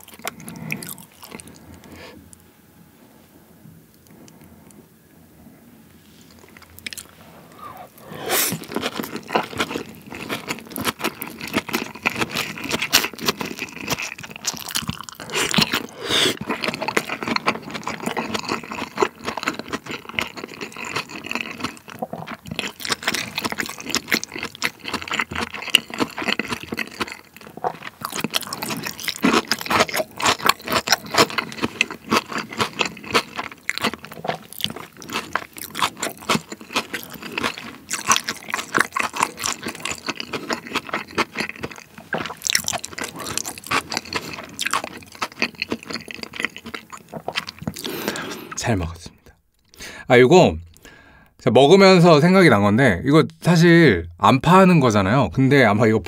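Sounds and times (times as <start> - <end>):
crunching chewing sounds: 0.0 - 2.4, 6.2 - 49.8.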